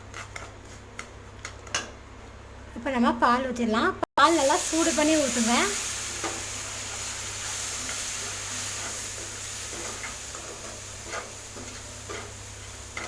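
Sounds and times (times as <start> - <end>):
milk sizzling in a pan: 4.2 - 13.0.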